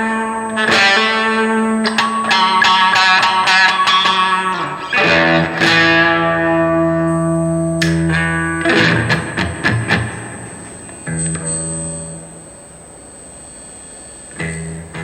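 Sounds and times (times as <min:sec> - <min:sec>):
electric guitar with reverb: 0:00.0 - 0:13.4, 0:14.3 - 0:15.0.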